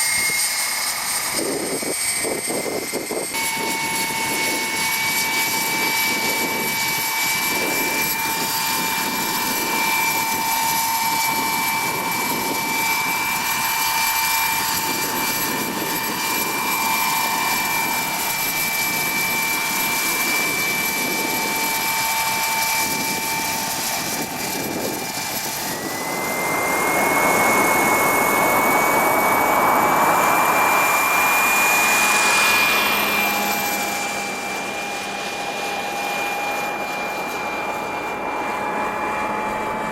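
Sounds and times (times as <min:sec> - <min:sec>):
gas turbine whining: 0:00.0 - 0:39.9
helicopter rotor noise: 0:00.0 - 0:39.9.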